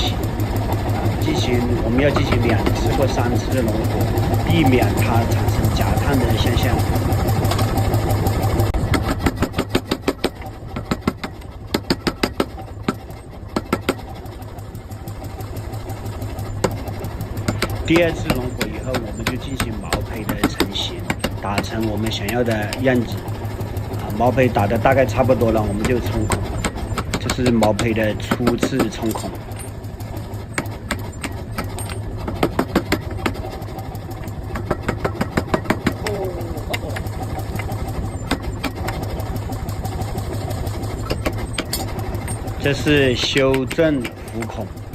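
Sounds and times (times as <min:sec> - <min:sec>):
low machine hum: 0:00.0 - 0:44.9
hammer striking hot iron: 0:08.9 - 0:13.0, 0:17.5 - 0:23.2, 0:24.1 - 0:29.7, 0:34.5 - 0:36.1, 0:41.0 - 0:44.7.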